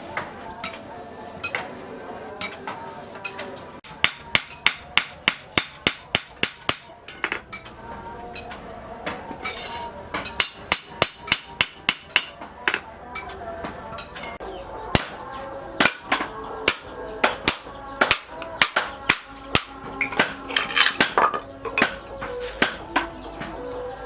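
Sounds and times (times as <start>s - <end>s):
hammer striking steel on anvil: 3.9s - 7.7s, 9.4s - 13.3s, 14.1s - 15.2s, 15.8s - 23.1s.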